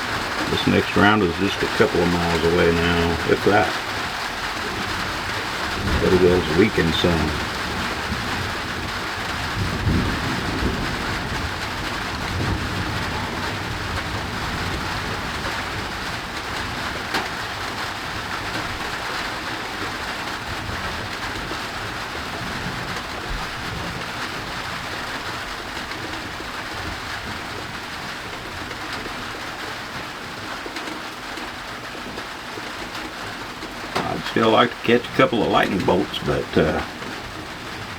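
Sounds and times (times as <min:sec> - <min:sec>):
thunder rumbling: 0:00.0 - 0:16.8
steady rain: 0:00.0 - 0:37.9.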